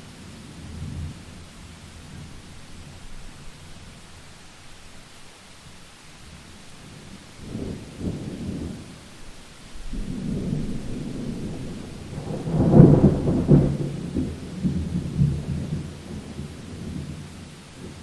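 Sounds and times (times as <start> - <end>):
rain: 0.0 - 18.0
thunder rumbling and cracking: 9.7 - 18.0.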